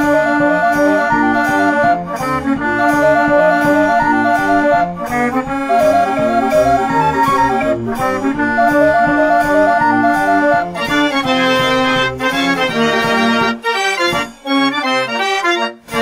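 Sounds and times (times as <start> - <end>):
background music with bass beat: 2.2 - 11.9.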